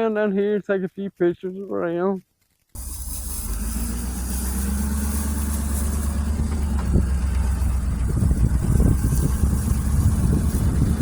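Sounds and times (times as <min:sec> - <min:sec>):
vehicle engine rumbling: 0:02.7 - 0:11.0
low thumps: 0:02.8 - 0:11.0.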